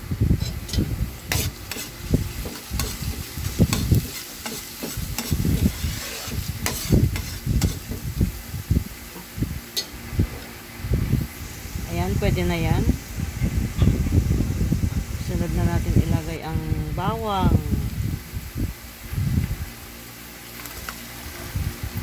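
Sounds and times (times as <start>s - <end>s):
ginger sizzling in oil: 0.0s - 22.0s
spatula scraping a wok: 0.4s - 8.0s.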